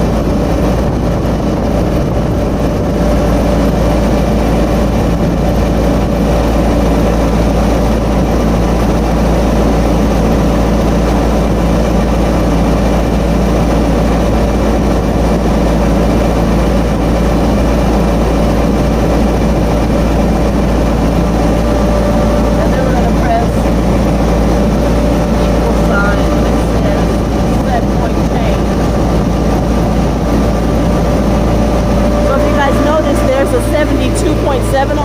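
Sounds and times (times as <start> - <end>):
diesel engine droning: 0.0 - 35.0.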